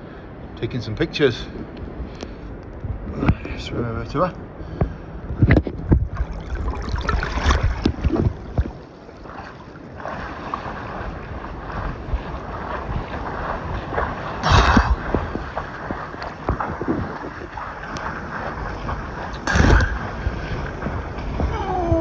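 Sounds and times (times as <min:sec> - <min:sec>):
water splashing from swimming: 0:04.7 - 0:22.0.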